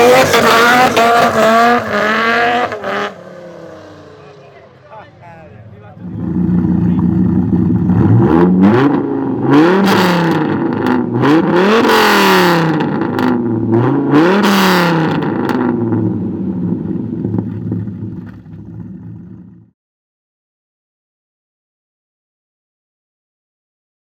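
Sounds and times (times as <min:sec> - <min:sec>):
car engine idling and revving: 0:00.0 - 0:19.7.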